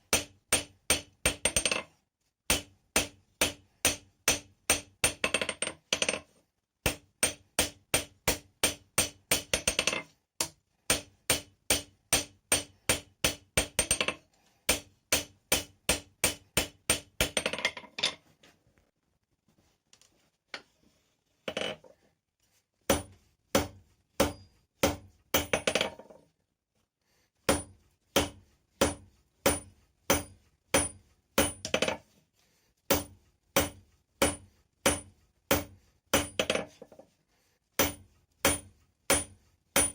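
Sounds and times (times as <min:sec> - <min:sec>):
hammer striking metal on anvil: 0:02.5 - 0:05.5, 0:06.9 - 0:14.1, 0:14.7 - 0:17.5, 0:22.9 - 0:25.8, 0:27.5 - 0:32.0, 0:32.9 - 0:36.6, 0:37.8 - 0:39.9.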